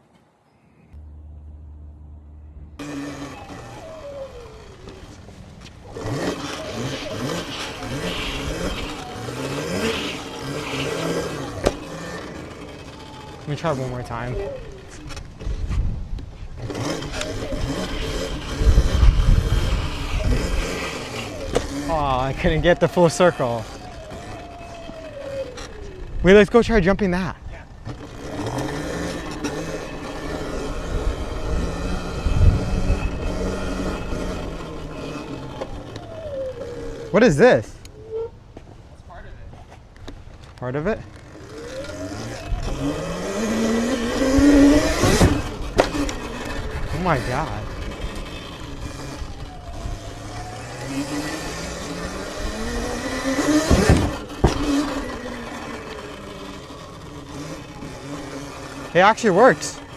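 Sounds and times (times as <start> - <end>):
tyre and wind rumble: 0.9 - 59.9
heavy low rumble: 1.0 - 3.8
electric motor whine: 1.0 - 38.7, 39.9 - 59.9.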